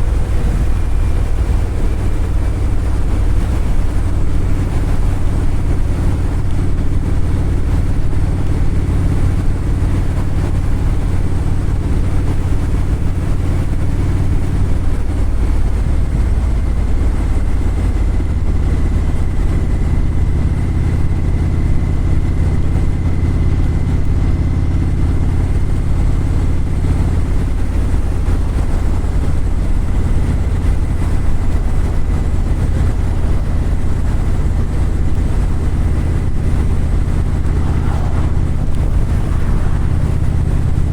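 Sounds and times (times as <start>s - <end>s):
engine droning: 0.0s - 40.9s
faint high whine: 31.2s - 40.9s.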